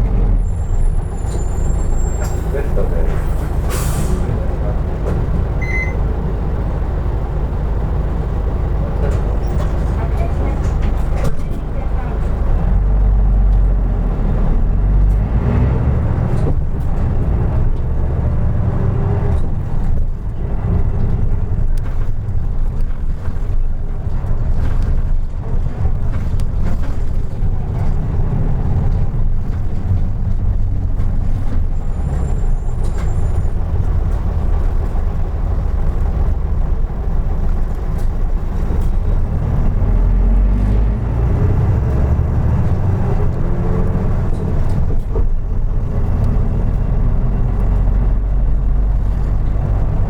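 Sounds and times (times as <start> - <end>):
bus diesel engine: 0.0 - 50.0
road rumble: 0.0 - 50.0.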